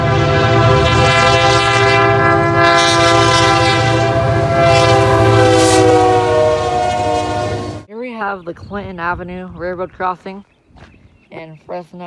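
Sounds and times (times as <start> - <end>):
train air horn chord: 0.0 - 7.9
train rumbling: 0.0 - 7.9.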